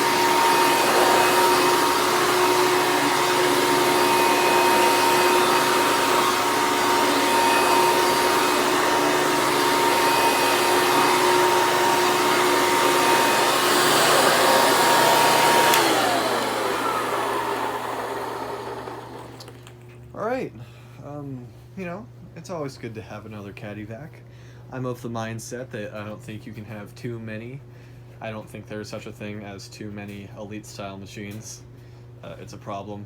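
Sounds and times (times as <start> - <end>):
vacuum cleaner whining: 0.0 - 19.8
vacuum cleaner switch click: 13.4 - 19.8.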